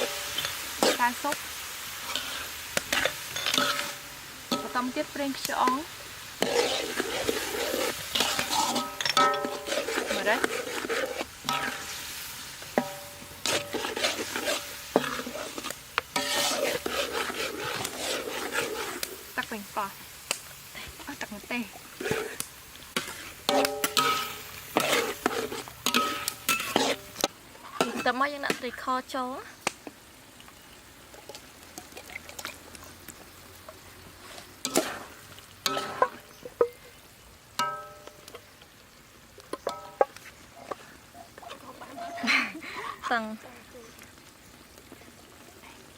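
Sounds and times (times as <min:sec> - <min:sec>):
spatula scraping pan: 0:00.0 - 0:19.8, 0:20.8 - 0:28.9, 0:33.7 - 0:36.9
rice sizzling in pan: 0:00.0 - 0:45.9
metallic knocks against pan: 0:12.8 - 0:13.2.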